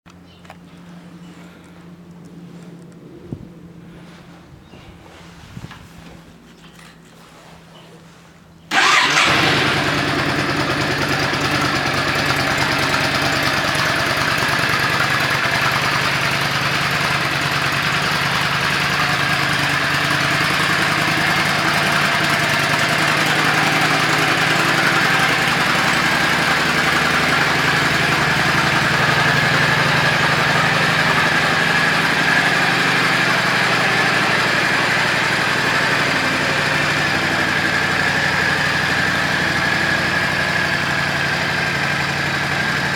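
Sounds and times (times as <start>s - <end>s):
motorcycle engine starting and idling: 8.7s - 42.9s.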